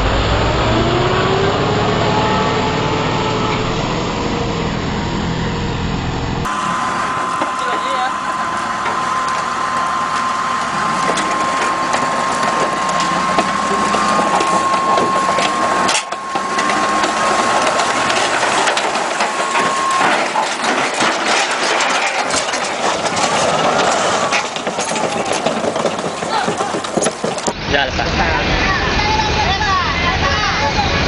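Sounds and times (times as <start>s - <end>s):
machinery clattering and grinding: 0.0s - 31.0s
steady high whine: 0.0s - 31.0s
sharp clicks and knocks: 10.6s - 27.6s.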